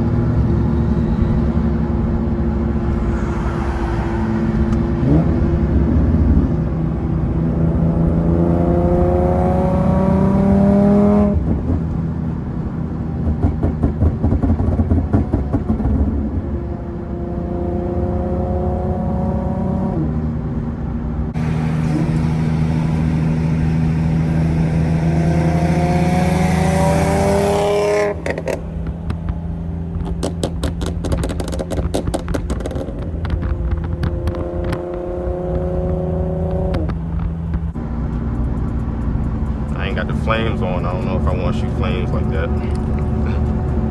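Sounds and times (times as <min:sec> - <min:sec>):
car engine revving hard: 0:02.1 - 0:06.6, 0:07.3 - 0:11.7, 0:21.4 - 0:37.4
exhaust crackling and popping: 0:13.1 - 0:16.2, 0:21.4 - 0:43.9.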